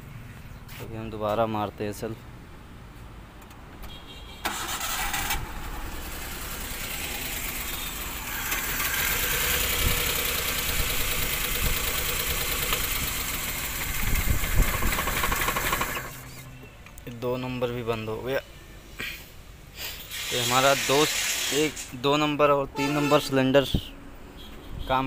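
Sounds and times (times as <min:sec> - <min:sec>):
car engine cranking on starter: 0:04.5 - 0:16.4
engine running roughly with misfire: 0:04.5 - 0:16.4.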